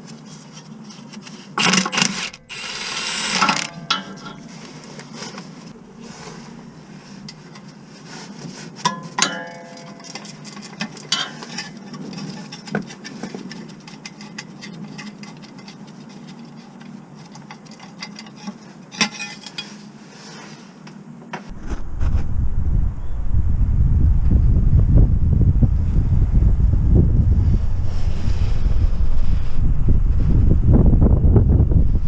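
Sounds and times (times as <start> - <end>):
low steady hum: 0.0 - 32.0
metal tools clinking on metal: 3.4 - 4.5, 8.9 - 15.8, 17.3 - 19.8.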